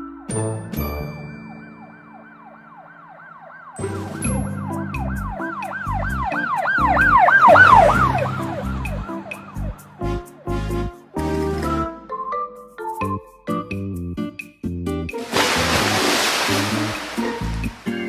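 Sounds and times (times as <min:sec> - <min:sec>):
cheerful music with a beat: 0:00.0 - 0:01.5, 0:03.8 - 0:15.3
emergency siren yelping: 0:01.8 - 0:03.8, 0:04.8 - 0:09.7.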